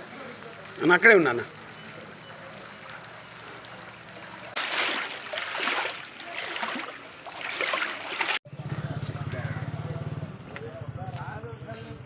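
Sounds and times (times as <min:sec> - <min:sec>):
floodwater rushing and splashing: 0:02.6 - 0:08.4.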